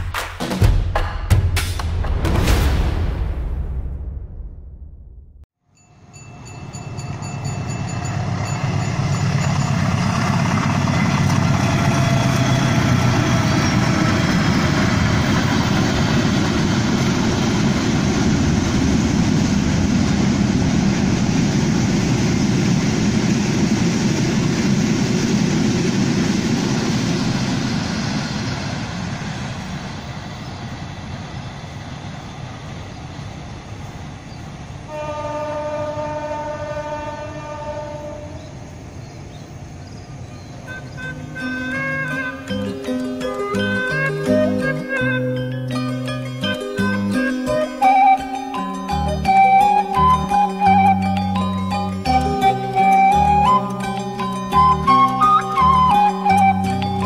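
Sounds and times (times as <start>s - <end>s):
diesel locomotive engine: 5.7s - 57.0s
wagons rolling on rails: 6.0s - 20.3s
train horn: 34.9s - 38.6s, 40.7s - 42.5s.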